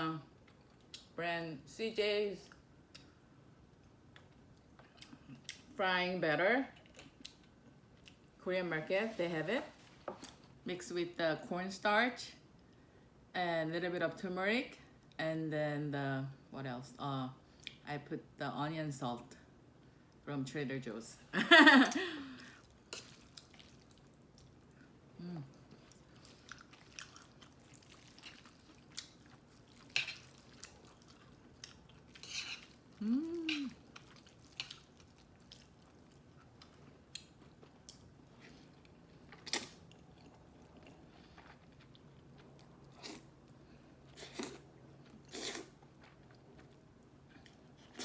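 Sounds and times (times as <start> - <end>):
chewing mouth sounds: 25.6 - 32.7
person humming: 33.0 - 33.8.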